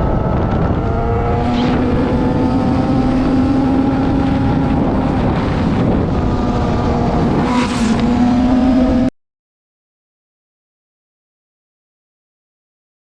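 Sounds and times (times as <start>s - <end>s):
car engine running: 0.0s - 9.1s
wind on microphone: 0.0s - 9.1s.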